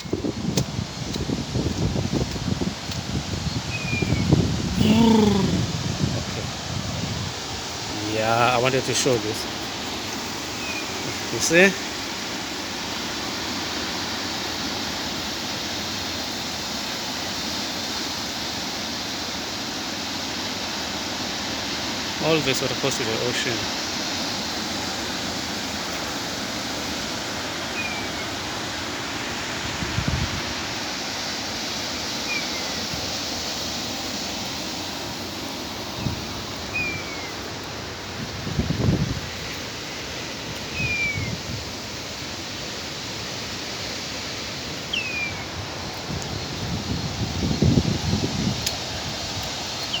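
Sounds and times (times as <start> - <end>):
wind buffeting microphone: 0.0 - 8.0, 38.1 - 39.5, 45.6 - 49.2
running stormwater: 0.0 - 50.0
stream water rushing: 0.0 - 50.0.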